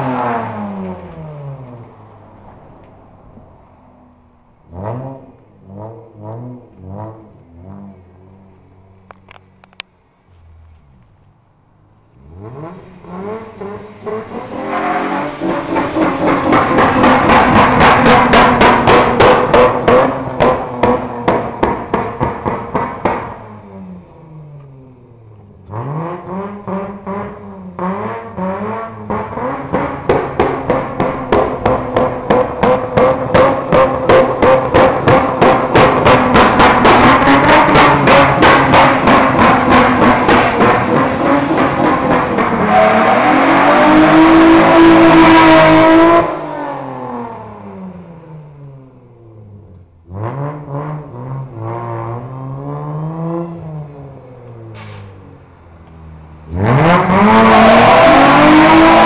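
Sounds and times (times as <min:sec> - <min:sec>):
car engine revving: 0:00.0 - 0:09.8, 0:11.8 - 0:59.0.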